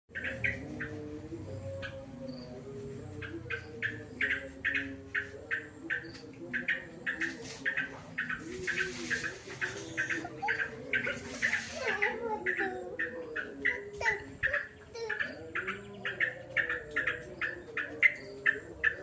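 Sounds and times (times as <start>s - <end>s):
bird chirping: 0.1s - 19.0s.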